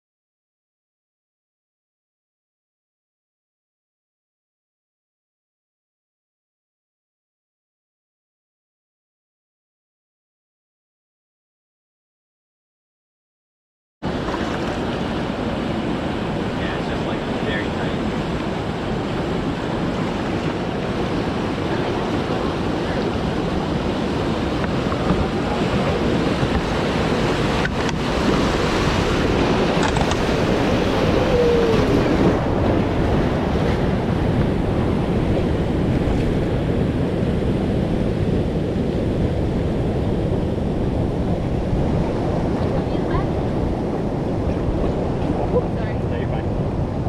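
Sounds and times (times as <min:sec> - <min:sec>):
river water rushing: 0:14.0 - 0:33.8
wind buffeting microphone: 0:14.1 - 0:47.0.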